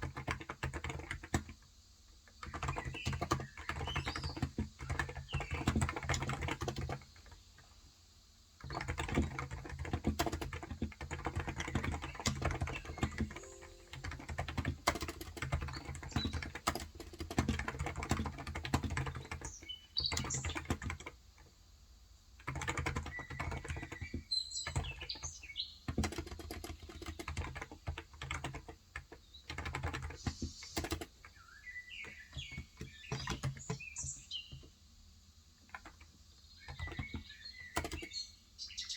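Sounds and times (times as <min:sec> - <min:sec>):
fast typing on keyboard: 0:00.0 - 0:07.7, 0:08.6 - 0:21.5, 0:22.4 - 0:34.7, 0:35.6 - 0:38.2
birds chirping: 0:02.4 - 0:07.4, 0:11.5 - 0:21.0, 0:22.8 - 0:27.4, 0:29.1 - 0:34.8, 0:35.8 - 0:38.9.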